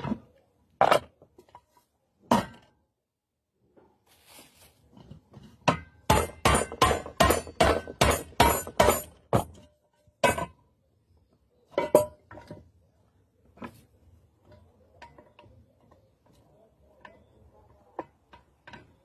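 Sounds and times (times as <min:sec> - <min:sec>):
metal knocks on pressure cooker: 0:05.7 - 0:09.6.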